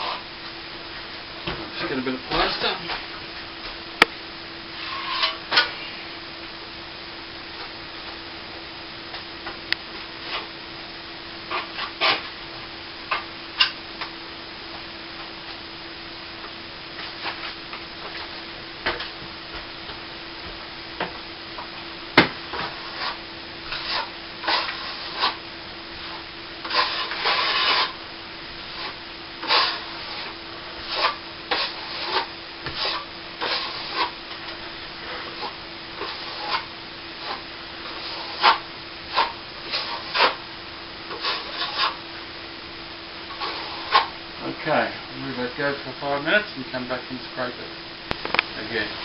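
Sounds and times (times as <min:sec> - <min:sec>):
faint steady hum: 0:00.0 - 0:49.0
trowel rasping on plaster: 0:22.7 - 0:25.4, 0:26.6 - 0:28.0, 0:28.8 - 0:34.2, 0:35.2 - 0:40.4, 0:41.1 - 0:42.0, 0:43.3 - 0:44.1.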